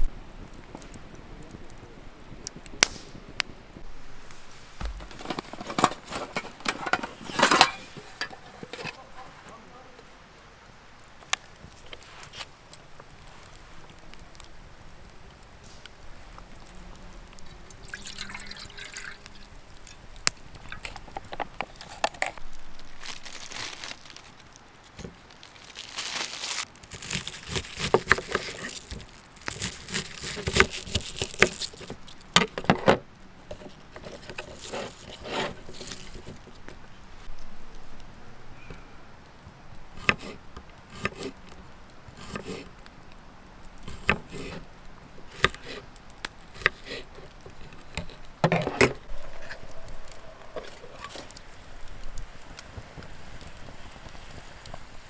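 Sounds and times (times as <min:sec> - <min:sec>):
liquid pouring and splashing: 0:17.3 - 0:22.4.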